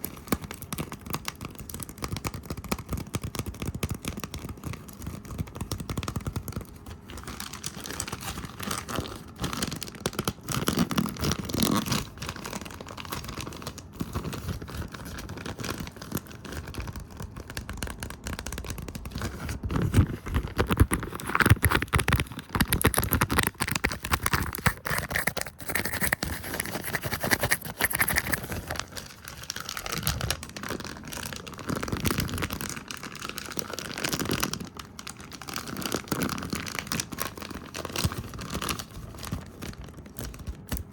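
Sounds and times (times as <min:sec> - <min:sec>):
scratchy brushing and rustling: 0:19.3 - 0:30.4.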